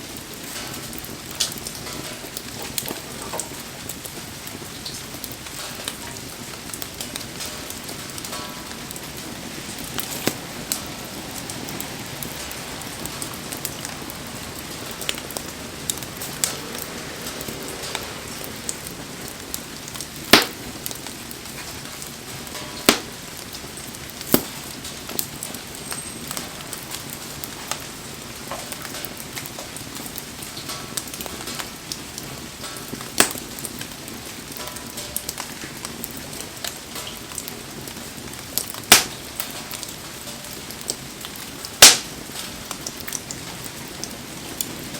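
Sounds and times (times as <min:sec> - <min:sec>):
rain falling: 0:00.0 - 0:44.9
wood fire crackling: 0:00.0 - 0:44.9
sharp pops of burning wood: 0:06.7 - 0:12.4, 0:17.9 - 0:26.5, 0:28.4 - 0:34.0, 0:38.5 - 0:39.9, 0:40.8 - 0:44.1.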